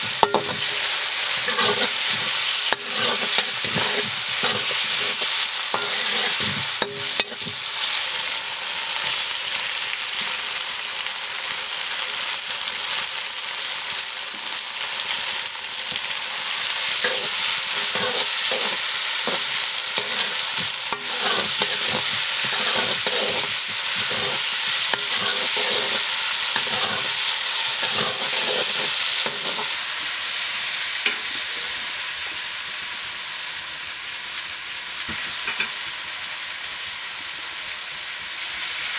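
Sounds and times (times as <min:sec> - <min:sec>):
wooden spoon scraping wok: 0:00.0 - 0:08.0, 0:16.9 - 0:29.9
food sizzling in hot oil: 0:00.0 - 0:38.9.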